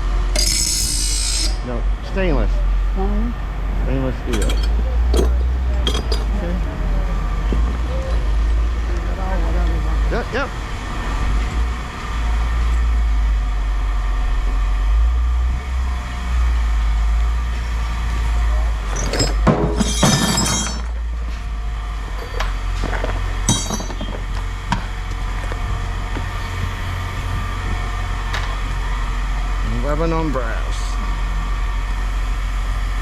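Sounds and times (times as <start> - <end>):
steady low hum: 0.0 - 33.0
scrap metal clanking into a bin: 4.3 - 6.4, 18.9 - 21.0, 22.1 - 24.5, 28.3 - 28.7.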